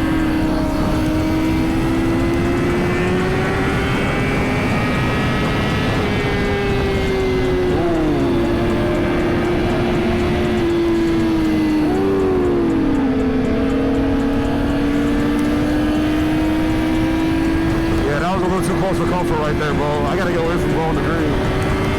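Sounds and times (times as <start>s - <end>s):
wind rush: 0.0s - 12.0s
motorcycle engine running: 0.0s - 21.9s
second engine swooping: 0.0s - 21.9s.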